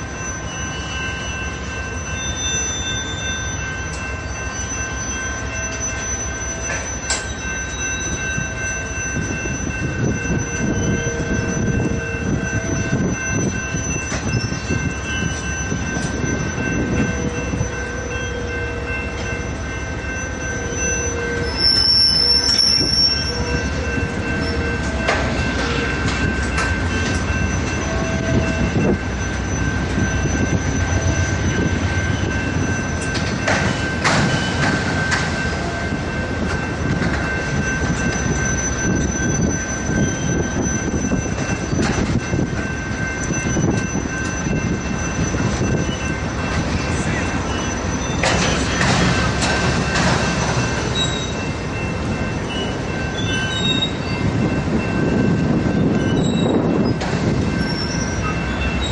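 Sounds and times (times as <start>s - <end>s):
shrill wheel squeal: 0.0s - 58.9s
train wheels rumbling on track: 0.0s - 58.9s.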